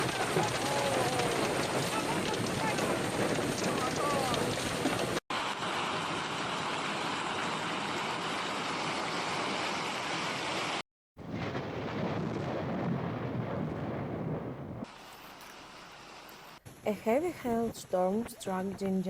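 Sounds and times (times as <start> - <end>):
hail and rain pelting: 0.0 - 8.0, 11.2 - 15.2.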